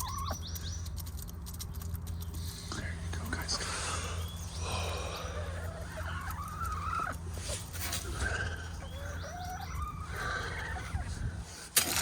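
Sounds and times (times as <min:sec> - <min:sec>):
hens calling: 0:00.0 - 0:00.9, 0:03.4 - 0:11.7
steady low hum: 0:00.0 - 0:12.0.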